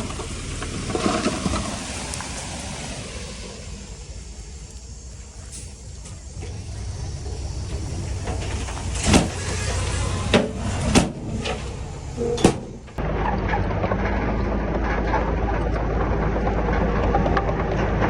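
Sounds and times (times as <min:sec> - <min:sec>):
heavy machinery diesel engine: 0:00.0 - 0:18.0
loud metallic clangs: 0:07.7 - 0:18.0.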